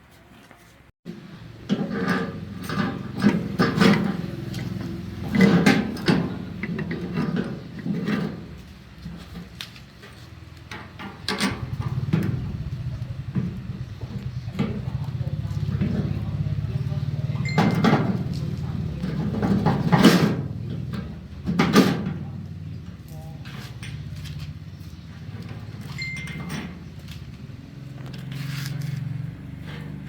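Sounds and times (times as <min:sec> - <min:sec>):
knocks and clatter on a machine: 0:01.7 - 0:08.5, 0:17.4 - 0:22.4.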